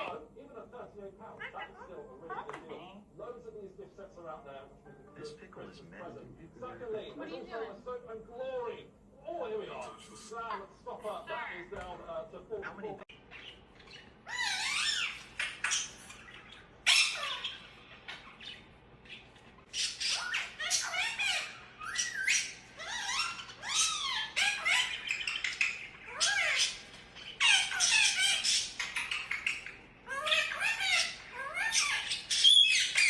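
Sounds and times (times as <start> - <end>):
parrots squawking: 1.2 - 2.6, 12.7 - 33.0.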